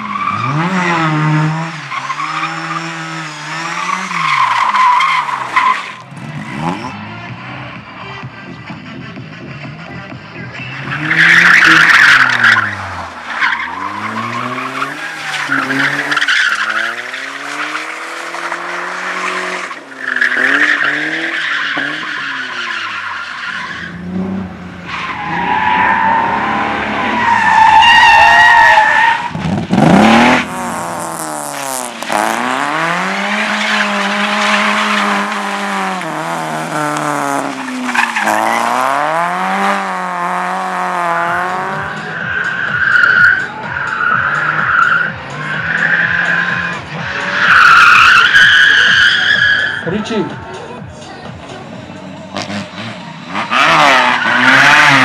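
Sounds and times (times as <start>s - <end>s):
car engines revving: 0.0s - 55.0s
tyres squealing: 10.6s - 24.0s, 24.8s - 50.4s.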